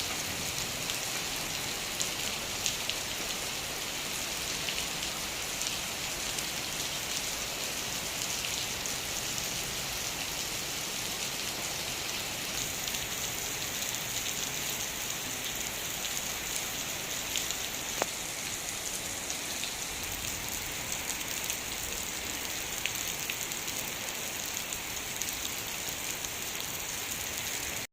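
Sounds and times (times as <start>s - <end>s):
heavy rain hissing: 0.0s - 27.9s
raindrop ticks: 17.4s - 18.2s.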